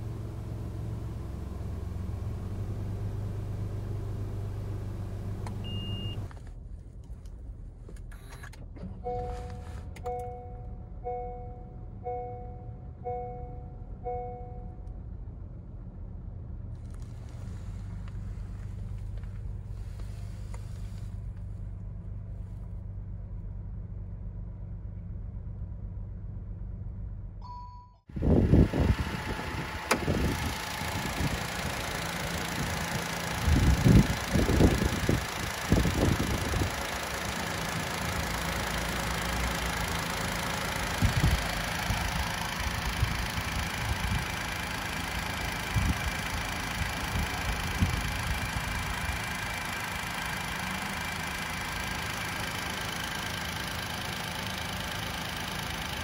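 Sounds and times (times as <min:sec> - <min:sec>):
car engine idling: 0:00.0 - 0:27.4, 0:28.1 - 0:56.0
two-tone warning chime: 0:09.1 - 0:14.8, 0:27.4 - 0:28.1.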